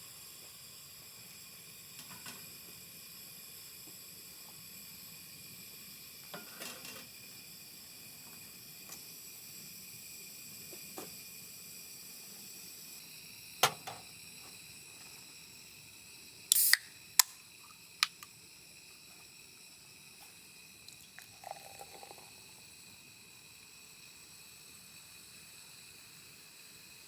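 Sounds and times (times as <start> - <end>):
hiss-like burst: 16.3 - 18.7
sharp clicks and knocks: 18.0 - 18.3.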